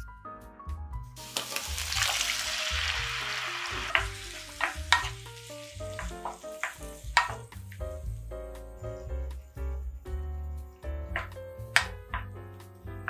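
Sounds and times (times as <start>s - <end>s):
tomatoes sizzling in hot oil: 1.2s - 8.4s
wooden spatula knocking pan: 3.8s - 5.3s, 5.9s - 7.8s, 11.1s - 12.4s.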